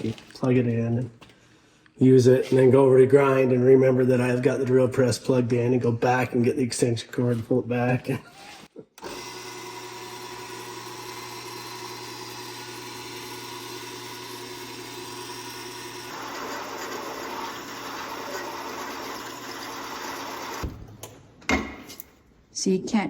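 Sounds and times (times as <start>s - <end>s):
drill press motor humming: 9.0s - 20.8s.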